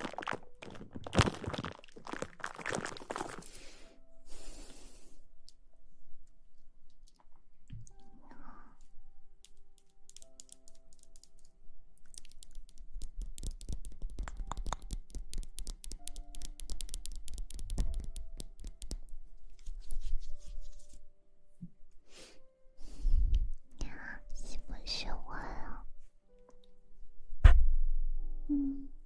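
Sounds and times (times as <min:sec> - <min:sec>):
soft background music: 0:00.0 - 0:29.0
crackling clicks: 0:09.4 - 0:19.2.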